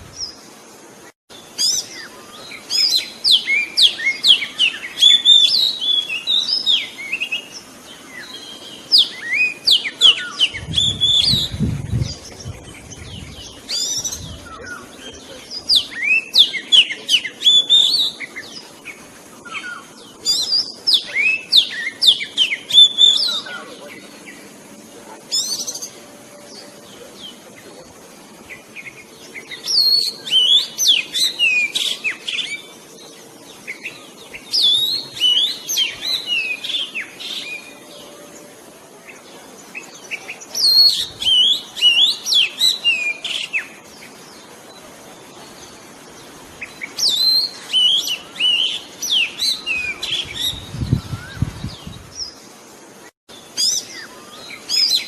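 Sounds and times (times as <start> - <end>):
magpie-robin singing: 46.6 - 52.4.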